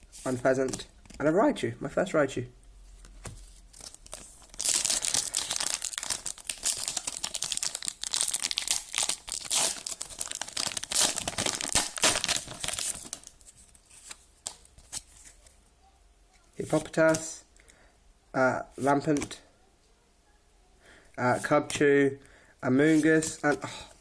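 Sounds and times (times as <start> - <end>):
foil pack tearing and crinkling: 3.8 - 13.3.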